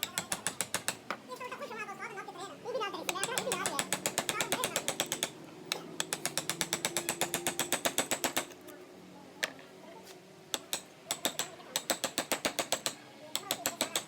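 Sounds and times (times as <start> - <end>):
carving tool tapping wood: 0.0 - 1.2, 3.1 - 8.6, 10.5 - 14.0.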